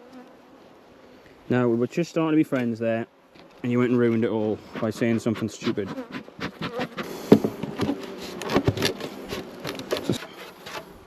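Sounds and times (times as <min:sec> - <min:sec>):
bees buzzing: 0:03.1 - 0:10.8.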